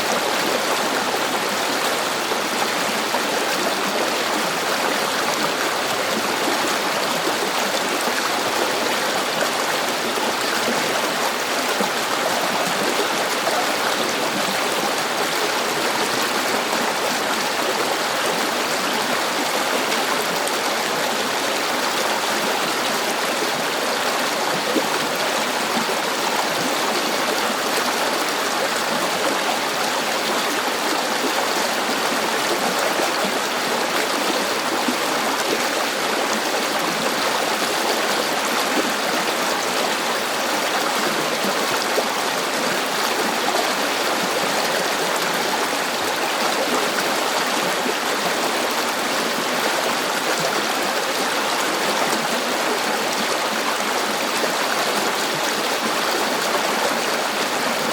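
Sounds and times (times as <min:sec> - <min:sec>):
river water flowing over rocks: 0:00.0 - 0:57.9.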